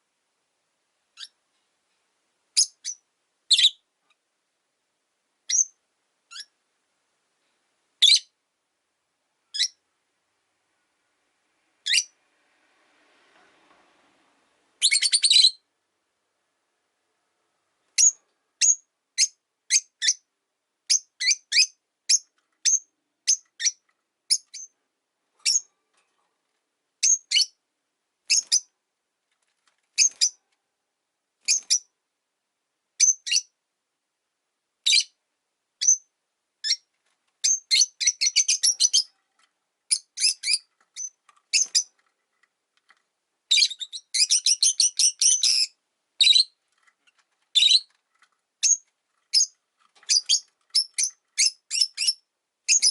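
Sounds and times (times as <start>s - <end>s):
lovebirds chirping: 1.1s - 1.4s, 2.5s - 3.9s, 5.4s - 6.6s, 8.0s - 8.4s, 9.5s - 9.8s, 11.8s - 12.2s, 14.8s - 15.7s, 17.9s - 24.8s, 25.4s - 25.7s, 27.0s - 27.6s, 28.2s - 28.8s, 29.9s - 30.4s, 31.4s - 32.0s, 33.0s - 33.6s, 34.8s - 35.2s, 35.8s - 42.1s, 43.5s - 48.0s, 48.6s - 52.9s.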